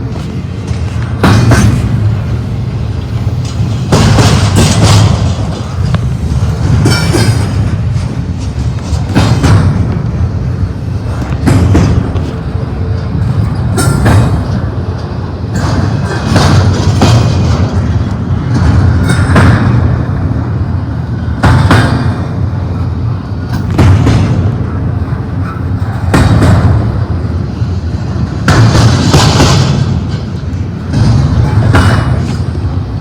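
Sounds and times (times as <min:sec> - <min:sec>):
freight train cars rumbling: 0:00.0 - 0:33.0
wheels and couplers clanking: 0:00.0 - 0:33.0.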